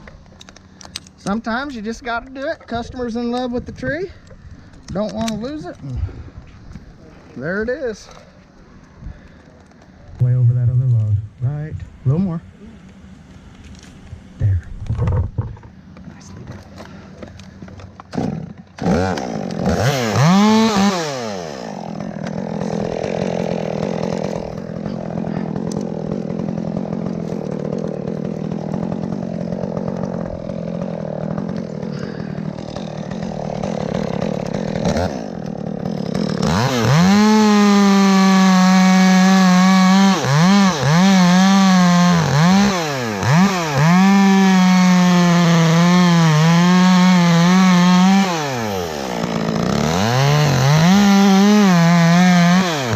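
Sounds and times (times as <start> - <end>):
chainsaw revving: 17.3 - 52.9.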